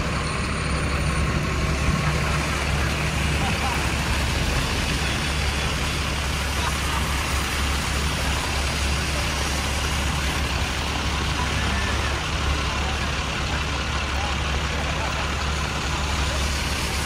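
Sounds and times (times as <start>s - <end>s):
street traffic hum: 0.0s - 17.0s
rain on an umbrella: 2.2s - 13.6s.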